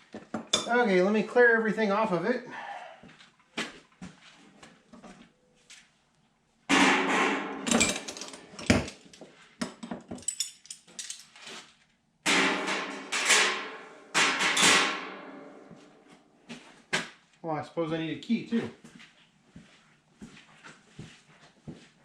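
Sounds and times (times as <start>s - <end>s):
metal hand tools clattering: 7.6s - 11.4s.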